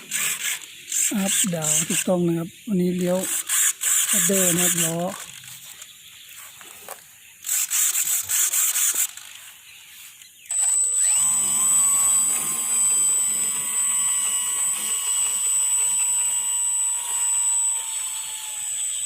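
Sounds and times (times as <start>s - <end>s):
electric motor whining: 0.0s - 5.9s, 10.5s - 19.0s
servo whirring: 0.0s - 6.0s, 7.4s - 9.6s, 10.5s - 19.0s.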